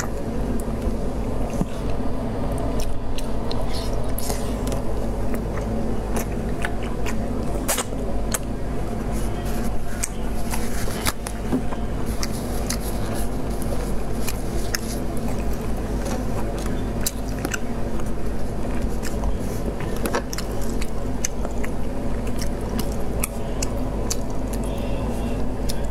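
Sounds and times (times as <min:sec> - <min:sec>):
person chewing food: 0:00.0 - 0:25.9
steady low hum: 0:00.0 - 0:25.9.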